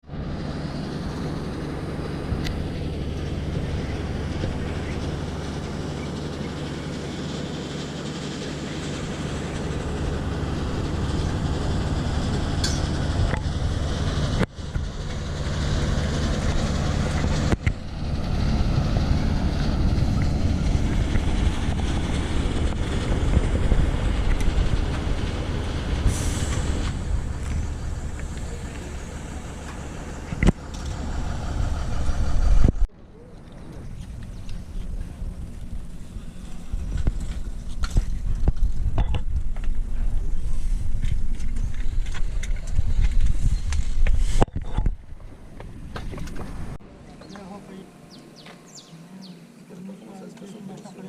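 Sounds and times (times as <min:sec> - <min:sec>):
propeller plane engine drone: 0:00.0 - 0:51.0.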